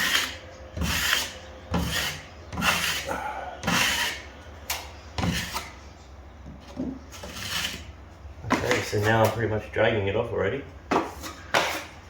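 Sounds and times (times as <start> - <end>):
drywall knife scraping compound: 0.0 - 4.3, 5.2 - 5.8, 7.1 - 7.9, 11.0 - 12.0.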